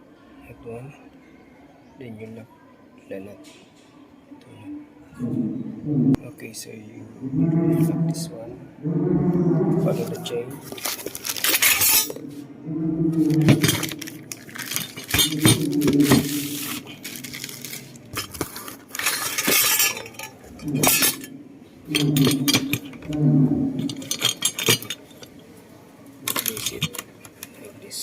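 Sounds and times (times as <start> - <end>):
metal saw chain clinking: 10.7 - 12.2, 13.2 - 25.4, 26.3 - 27.0.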